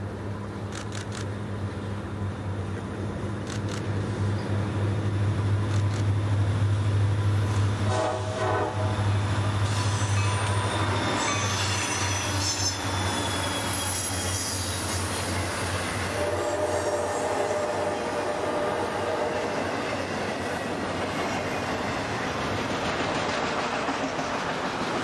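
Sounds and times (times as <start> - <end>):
locomotive engine drone: 0.0 - 23.5
train horn: 7.8 - 15.1, 16.0 - 20.0
train wheels squealing: 9.6 - 22.4.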